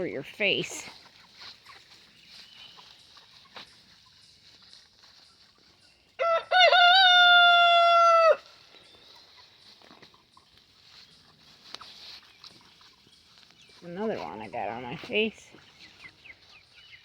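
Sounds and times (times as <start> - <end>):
rooster crowing: 6.2 - 8.5.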